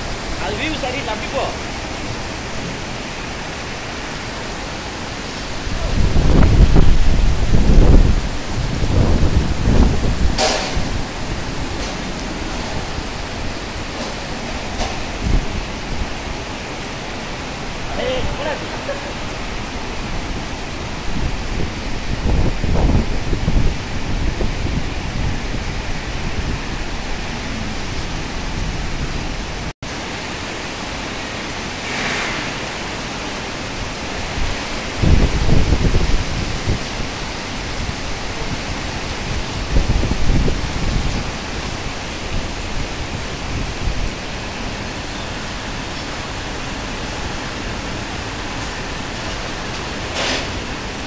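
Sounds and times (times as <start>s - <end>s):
low rumbles: 0.0s - 29.7s
heavy rain pouring: 0.0s - 51.0s.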